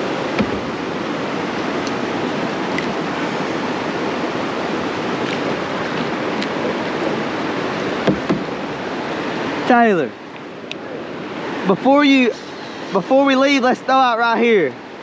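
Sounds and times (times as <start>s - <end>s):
creek water rushing: 0.0s - 15.0s
short knocks: 0.3s - 0.7s, 8.0s - 8.5s.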